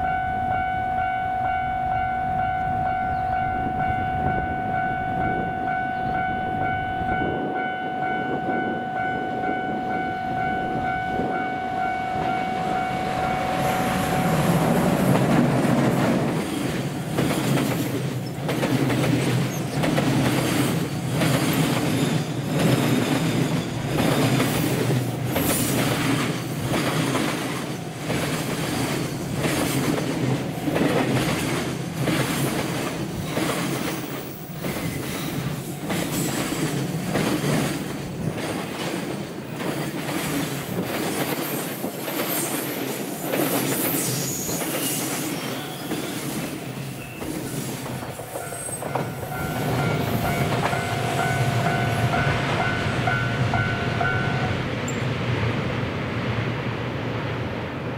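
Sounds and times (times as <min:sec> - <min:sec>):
freight train rumbling past: 0:00.0 - 0:57.9
wheels clacking over rail joints: 0:13.2 - 0:55.0
train wheels squealing: 0:19.2 - 0:30.1, 0:33.2 - 0:36.8, 0:40.2 - 0:52.9, 0:54.2 - 0:55.2.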